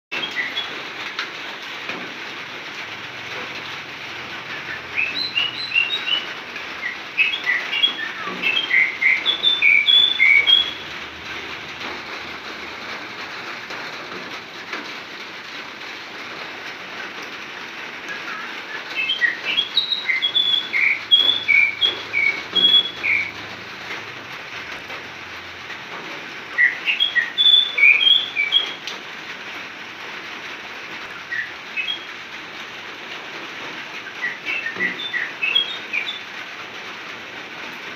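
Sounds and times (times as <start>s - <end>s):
songbird whistling: 0.2s - 0.7s, 4.5s - 10.9s, 18.1s - 23.3s, 26.6s - 28.8s, 31.3s - 32.1s, 34.0s - 36.2s.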